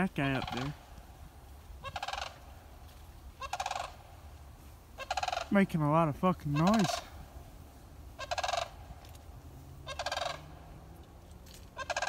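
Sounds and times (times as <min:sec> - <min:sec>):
large bird rattling call: 0:01.8 - 0:02.4, 0:03.4 - 0:04.0, 0:05.0 - 0:05.5, 0:08.2 - 0:09.1, 0:09.8 - 0:10.6, 0:11.4 - 0:12.0.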